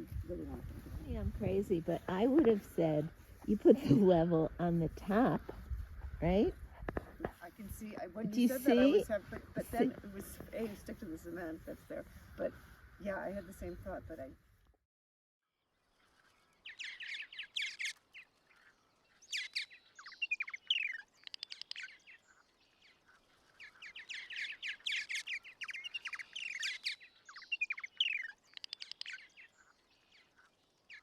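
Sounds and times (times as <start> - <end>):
birds singing: 7.6 - 14.0, 16.3 - 31.0.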